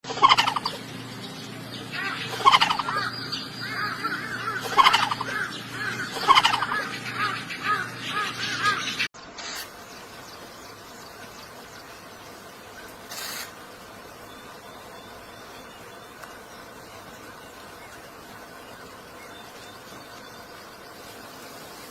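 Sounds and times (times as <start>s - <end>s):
birds calling: 0.0s - 21.9s
faint hiss: 9.4s - 21.9s.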